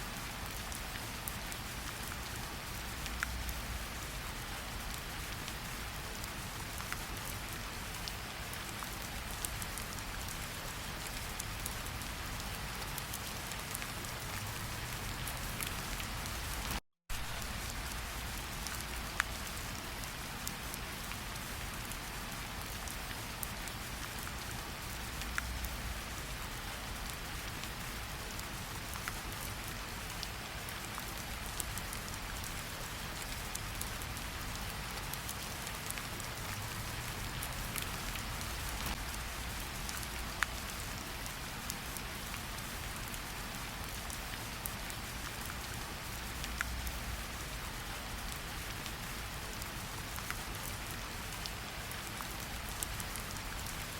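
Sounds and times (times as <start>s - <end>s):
steady rain falling: 0.0s - 53.9s
raindrops ticking: 30.2s - 40.8s.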